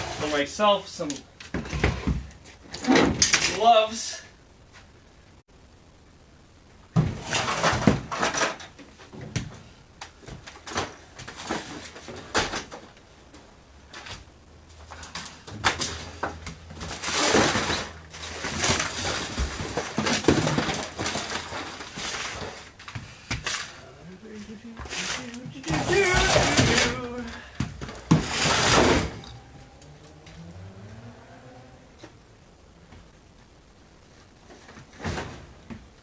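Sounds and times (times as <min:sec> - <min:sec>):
objects knocking and clattering: 0:14.8 - 0:23.8.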